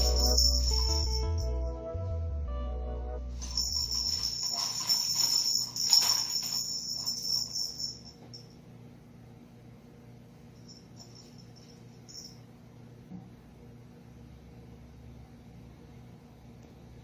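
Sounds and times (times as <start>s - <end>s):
ball rattling around plastic toy: 3.4s - 8.0s.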